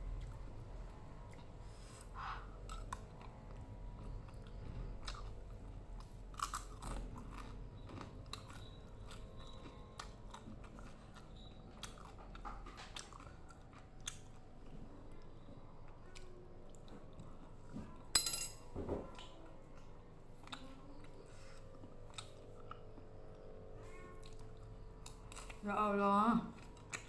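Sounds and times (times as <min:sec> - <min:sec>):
person chewing crunchy food: 0:02.5 - 0:14.9, 0:20.4 - 0:23.5, 0:24.2 - 0:25.6.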